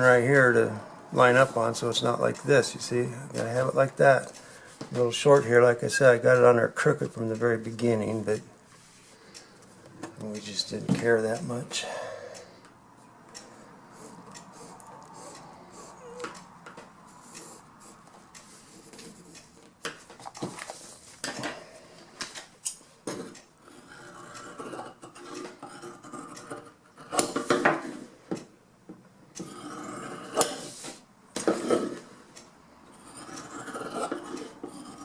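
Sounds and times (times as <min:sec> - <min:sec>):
tools tapping and knocking: 0:10.0 - 0:11.2, 0:24.8 - 0:29.5.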